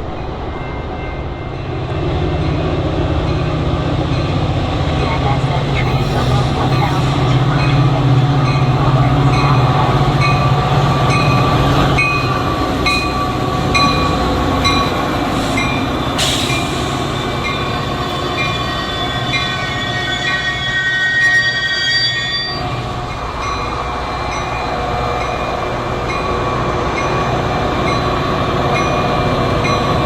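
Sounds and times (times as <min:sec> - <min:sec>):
train rumbling past: 0:00.0 - 0:30.0
metallic wheel squeals: 0:05.8 - 0:07.4, 0:16.2 - 0:22.8.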